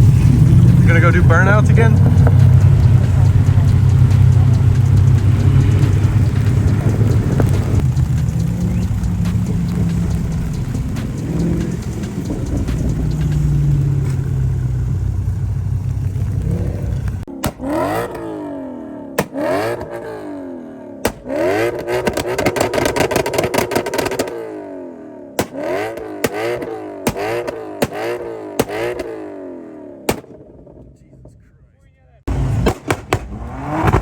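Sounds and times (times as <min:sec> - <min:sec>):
car engine rumbling: 0:00.0 - 0:34.0
sharp clicks: 0:01.0 - 0:14.3.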